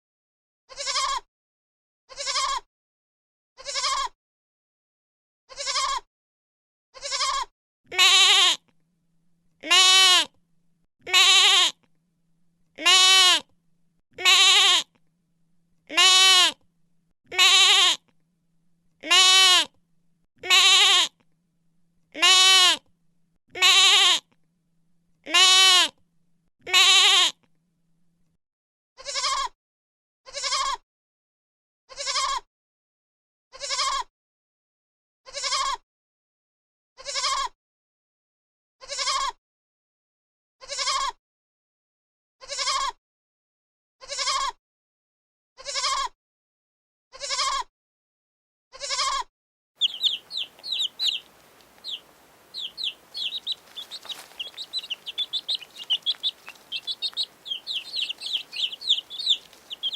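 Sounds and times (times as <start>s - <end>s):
animal bleating: 0.7s - 1.2s, 2.1s - 2.6s, 3.6s - 4.1s, 5.5s - 6.0s, 7.0s - 8.6s, 9.6s - 10.3s, 11.1s - 11.7s, 12.8s - 13.4s, 14.2s - 14.8s, 15.9s - 16.6s, 17.3s - 18.0s, 19.0s - 19.7s, 20.4s - 21.1s, 22.2s - 22.8s, 23.6s - 24.2s, 25.3s - 25.9s, 26.7s - 27.3s, 29.0s - 29.5s, 30.3s - 30.8s, 32.0s - 32.4s, 35.4s - 35.7s, 37.1s - 37.5s, 45.7s - 46.1s, 49.8s - 59.9s.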